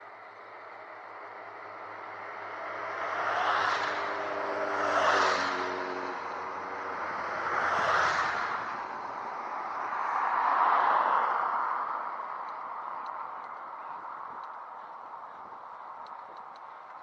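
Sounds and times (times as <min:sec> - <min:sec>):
engine hum: 0:00.0 - 0:10.2
vehicles passing by: 0:00.0 - 0:17.0.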